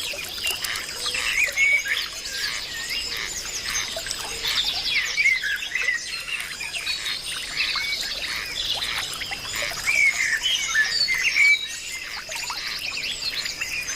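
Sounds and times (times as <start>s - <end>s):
birds chirping chorus: 0.0s - 13.9s.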